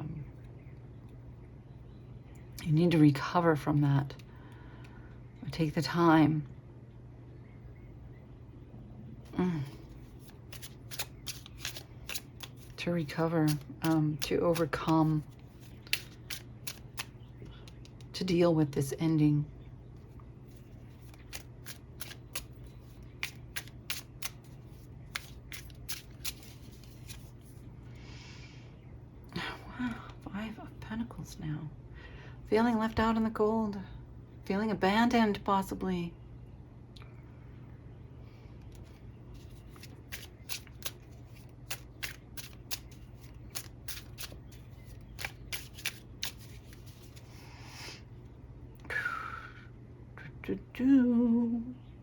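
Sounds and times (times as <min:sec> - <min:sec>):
cards being shuffled: 0:09.6 - 0:18.1, 0:20.5 - 0:27.6, 0:38.7 - 0:47.4.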